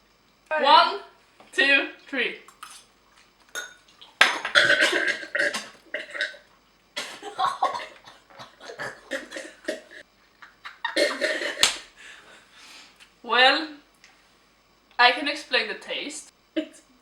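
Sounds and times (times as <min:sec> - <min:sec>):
people gagging and coughing: 0:03.6 - 0:06.4, 0:07.0 - 0:10.0, 0:10.7 - 0:11.8.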